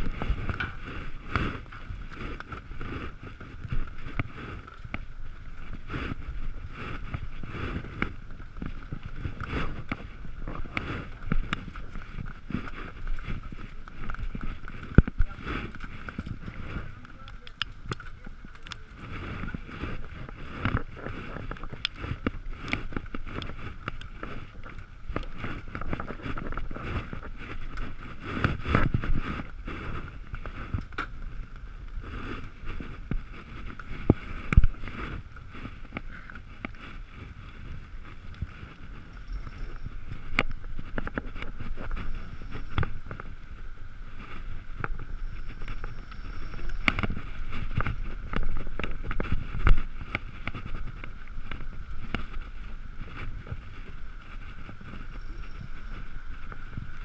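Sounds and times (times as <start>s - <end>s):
wind and wet road rumble: 0.0s - 57.0s
faint high whine: 38.9s - 40.8s, 44.2s - 48.0s, 54.4s - 57.0s.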